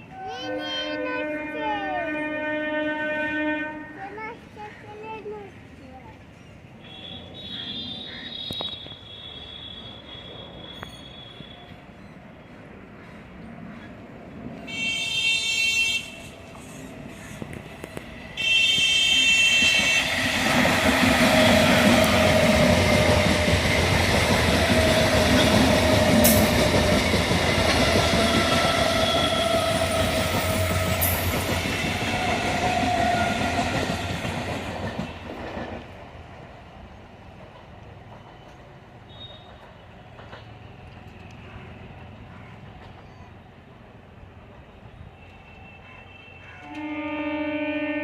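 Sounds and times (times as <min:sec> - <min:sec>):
train horn blasts: 0:00.2 - 0:04.0, 0:14.7 - 0:16.3, 0:18.4 - 0:20.3, 0:45.5 - 0:48.0
train wheels rumbling on rails: 0:16.1 - 0:47.1.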